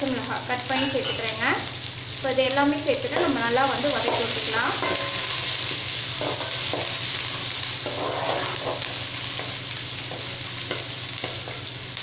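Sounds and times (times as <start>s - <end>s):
vegetables sizzling in hot oil: 0.0s - 12.0s
spatula scraping a pan: 3.2s - 11.7s.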